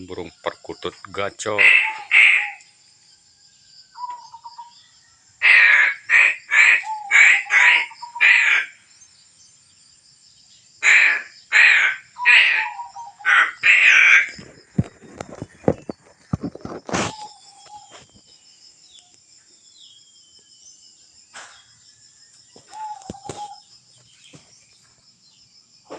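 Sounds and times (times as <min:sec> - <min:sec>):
crow cawing: 0:01.6 - 0:02.7, 0:05.4 - 0:08.8, 0:10.8 - 0:14.4.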